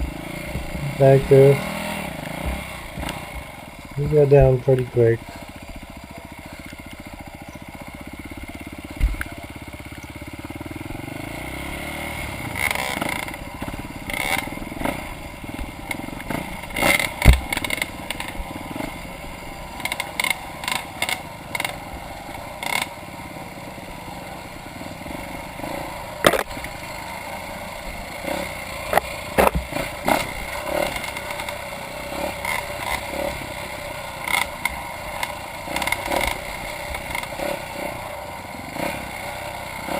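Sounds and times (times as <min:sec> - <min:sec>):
motorcycle engine running: 0:00.0 - 0:39.9
bike clacking over rocks: 0:16.8 - 0:18.4, 0:26.2 - 0:26.8, 0:28.9 - 0:30.4.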